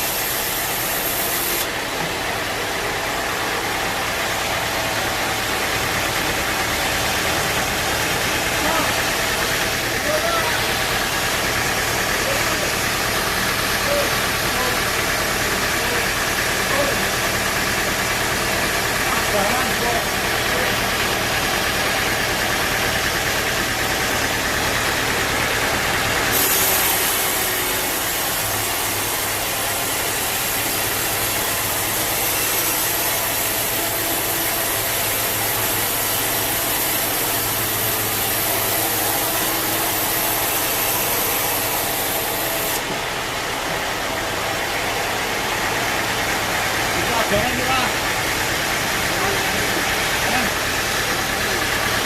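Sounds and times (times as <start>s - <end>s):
saw blade high hiss: 0.0s - 1.8s, 26.3s - 42.8s
sawmill machinery drone: 0.0s - 52.0s.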